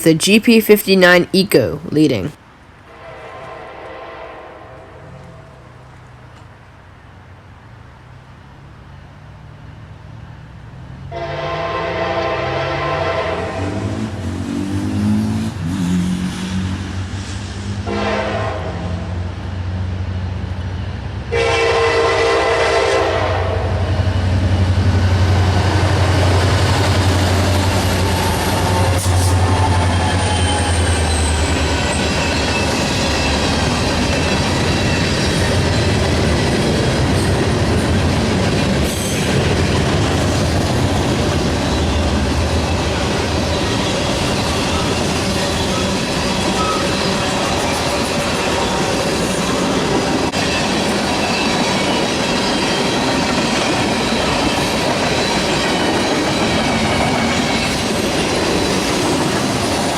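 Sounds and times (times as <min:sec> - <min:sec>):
diesel locomotive engine: 0:01.6 - 0:59.9
train horn blasts: 0:02.9 - 0:05.8, 0:11.1 - 0:14.0, 0:17.8 - 0:19.2, 0:21.3 - 0:23.9
train wheels rumbling: 0:08.9 - 0:59.9.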